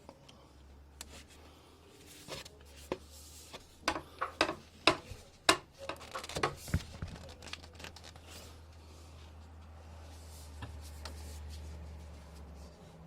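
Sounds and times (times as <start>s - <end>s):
pipe fittings clicking and knocking: 3.8s - 7.2s.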